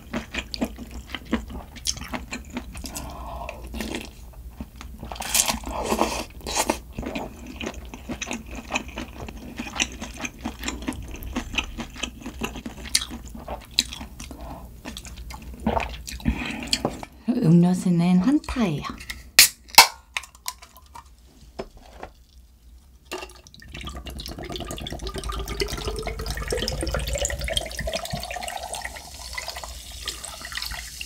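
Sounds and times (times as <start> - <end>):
chewing and crunching food: 0.0 - 17.1.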